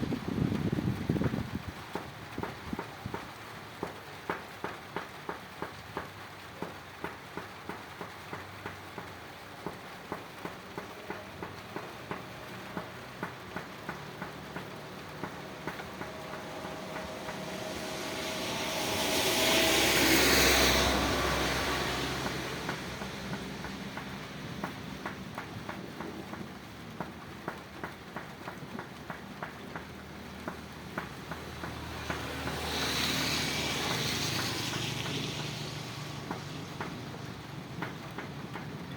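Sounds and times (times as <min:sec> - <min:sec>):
light rain: 0:00.0 - 0:38.9
water dripping: 0:00.1 - 0:38.9
passing vehicle rumble: 0:07.9 - 0:38.9.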